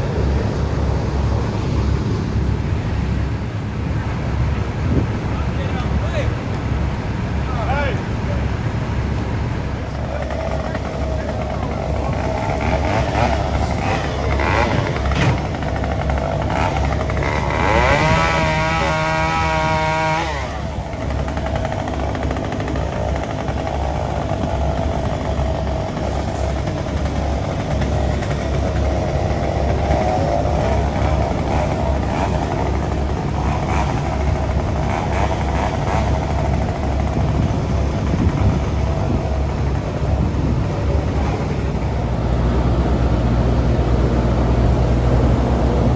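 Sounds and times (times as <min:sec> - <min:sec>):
engine running: 0:00.0 - 0:45.9
higher engine note rising: 0:09.9 - 0:20.8.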